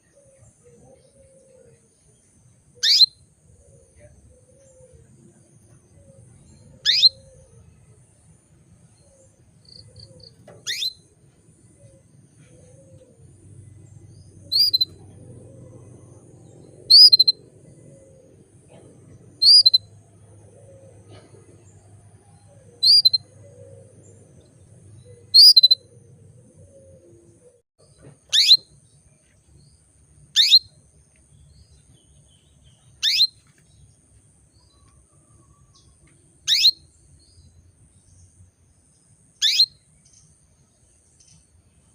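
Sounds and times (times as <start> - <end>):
canary chirps: 2.8 - 3.2, 6.2 - 7.5, 9.0 - 26.1, 28.0 - 28.8, 30.2 - 33.6, 35.7 - 37.5, 39.3 - 40.4.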